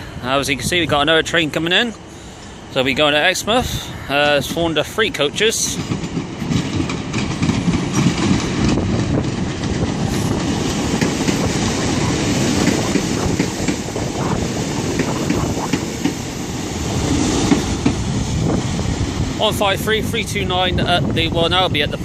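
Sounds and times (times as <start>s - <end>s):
diesel train engine rumble: 0.0s - 22.0s
wheels clicking over rail joints: 5.3s - 14.1s.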